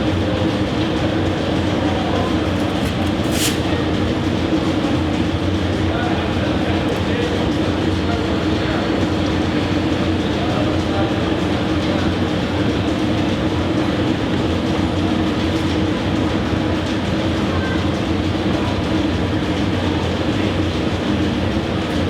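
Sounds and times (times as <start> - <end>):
loud mechanical rumble: 0.0 - 22.0.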